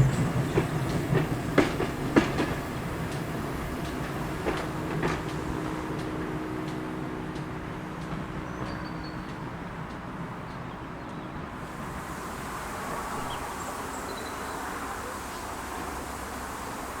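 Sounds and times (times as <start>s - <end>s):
steam train rumbling by: 0.0s - 17.0s
high hiss: 11.6s - 17.0s.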